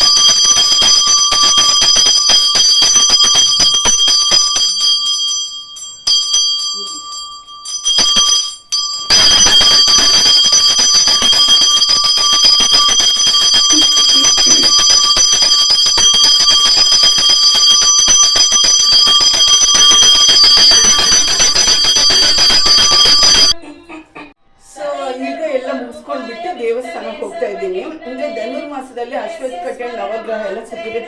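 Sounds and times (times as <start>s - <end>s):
hand bell ringing rapidly: 0.0s - 23.6s.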